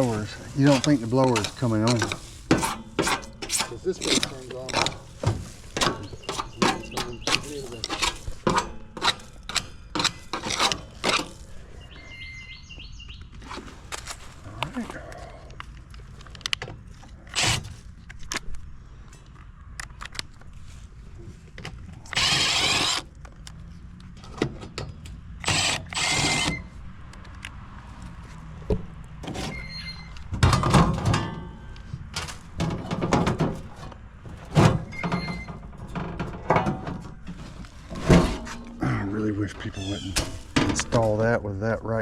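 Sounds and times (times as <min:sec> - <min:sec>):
tools knocking and rattling: 0:00.6 - 0:11.4, 0:29.2 - 0:38.8, 0:39.9 - 0:41.2.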